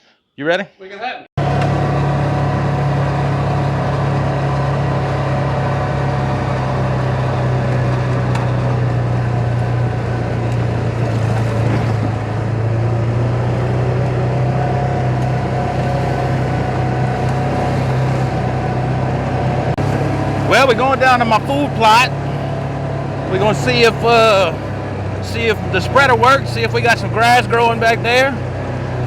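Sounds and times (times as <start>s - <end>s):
vehicle engine droning: 1.4s - 29.0s.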